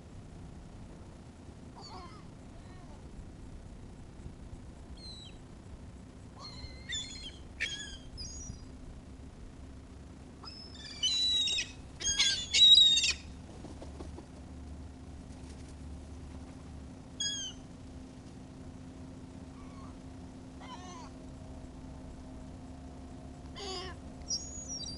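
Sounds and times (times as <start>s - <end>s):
seagulls calling: 6.4s - 8.6s, 10.4s - 13.4s, 17.2s - 17.6s, 20.6s - 21.2s, 23.6s - 24.9s.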